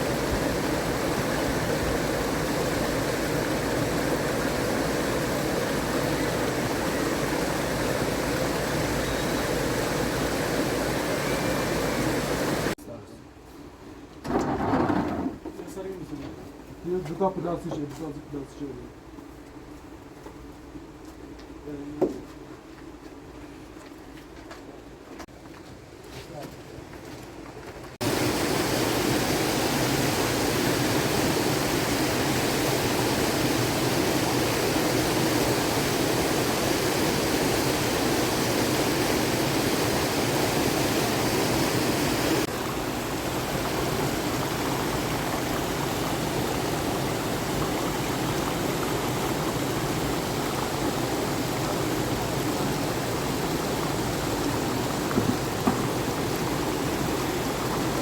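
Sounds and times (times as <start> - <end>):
flowing water rushing: 0.0 - 12.8, 28.0 - 58.0.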